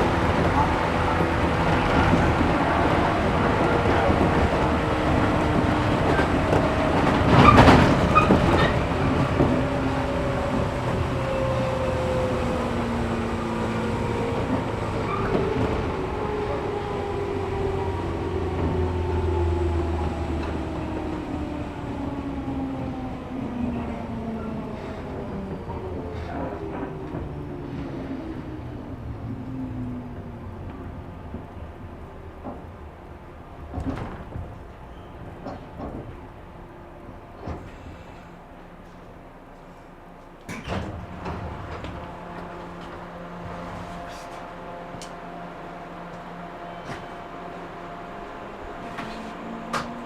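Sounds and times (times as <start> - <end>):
train motor whine: 39.6 - 50.0.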